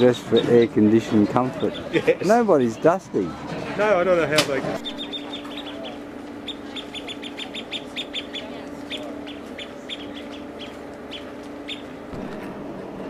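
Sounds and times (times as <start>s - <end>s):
small birds chirping: 0.0s - 2.0s, 4.8s - 12.1s
steady low hum: 0.0s - 13.0s.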